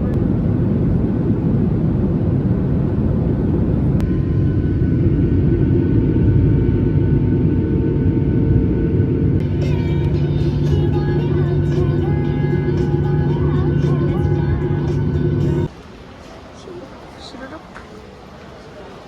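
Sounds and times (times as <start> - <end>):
vehicle cabin rumble: 0.0 - 15.7
faint steady tones: 3.4 - 17.6.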